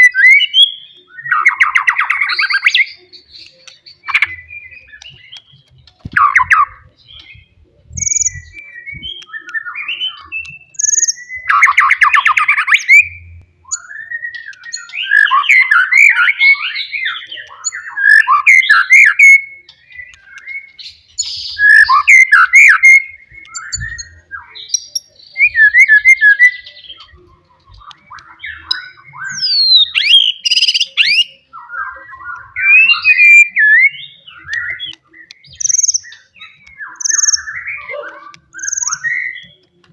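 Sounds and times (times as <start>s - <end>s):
songbird singing whistled phrases: 0.0s - 39.8s.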